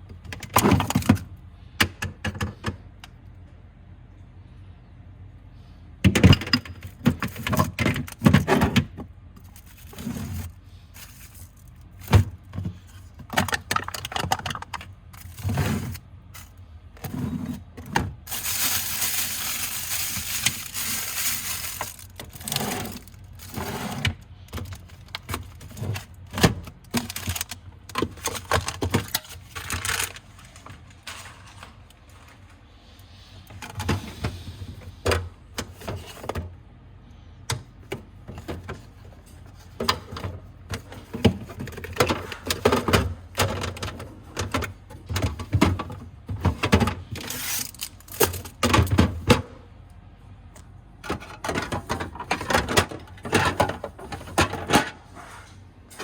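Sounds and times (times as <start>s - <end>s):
food containers clacking: 6.4s - 16.0s, 17.8s - 32.4s, 51.0s - 55.0s
packaging rustling: 18.3s - 23.6s.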